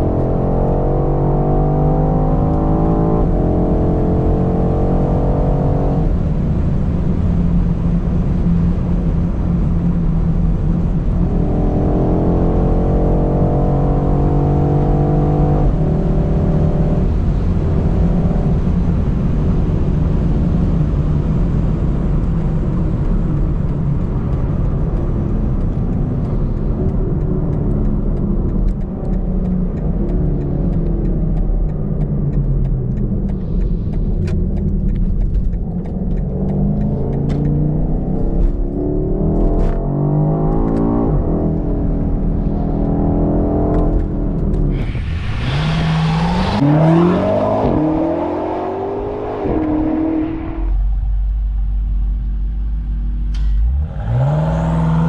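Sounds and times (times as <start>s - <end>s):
car engine pulling hard: 0.0s - 55.0s
road rumble: 0.0s - 55.0s.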